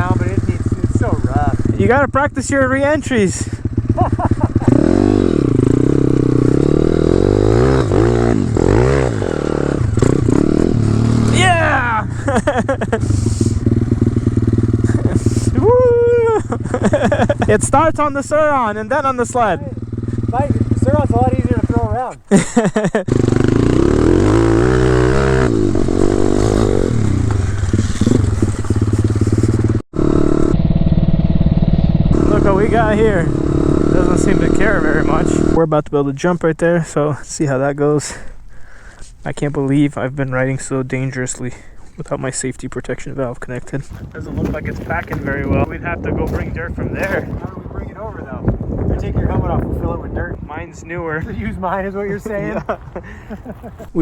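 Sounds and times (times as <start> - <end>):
motorbike engine revving: 0.0 - 35.7.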